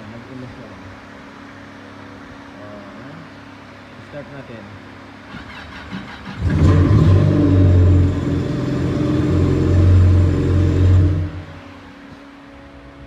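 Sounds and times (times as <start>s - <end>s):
electric starter cranking: 5.3s - 11.7s
jet ski engine running: 5.3s - 12.0s.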